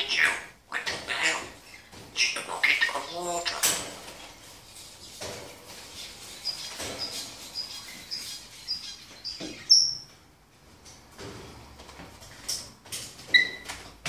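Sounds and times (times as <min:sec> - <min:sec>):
bird chirping: 0:00.0 - 0:03.7, 0:04.7 - 0:10.2.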